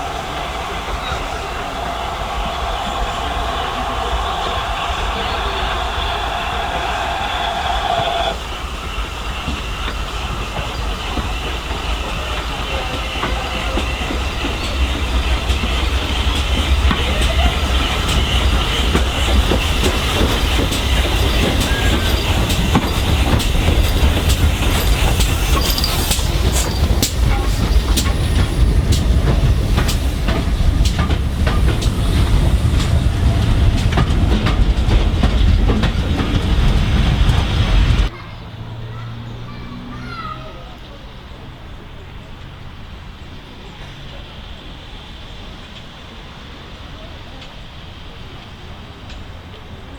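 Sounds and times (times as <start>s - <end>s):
steam train rumbling on rails: 0.0s - 49.9s
wheel clicks over rail joints: 8.8s - 38.1s.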